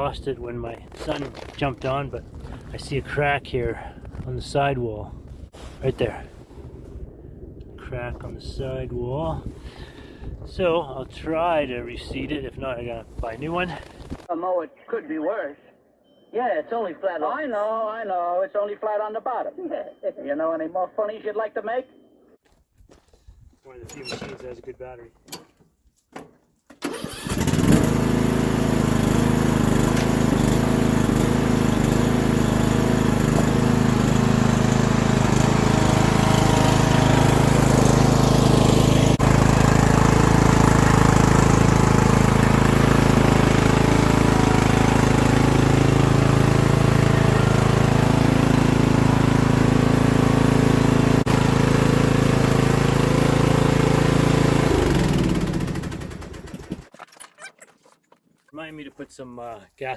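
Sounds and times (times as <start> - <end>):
lawn mower engine running: 26.8 - 56.9.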